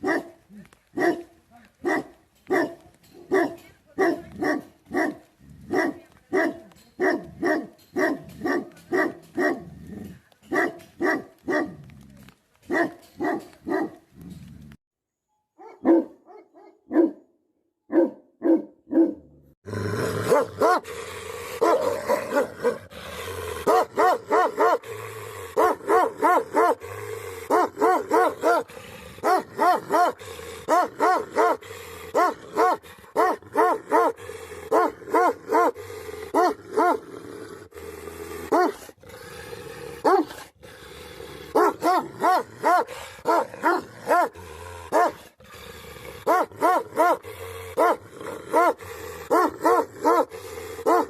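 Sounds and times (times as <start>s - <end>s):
dog barking: 0.0s - 0.4s, 1.0s - 9.7s, 10.5s - 11.8s, 12.7s - 14.0s, 15.6s - 17.3s, 17.9s - 19.3s, 20.2s - 20.9s, 21.6s - 22.9s, 23.6s - 24.8s, 25.5s - 26.8s, 27.5s - 37.0s, 38.5s - 38.8s, 40.0s - 40.4s, 41.5s - 45.2s, 46.2s - 47.2s, 47.8s - 51.0s.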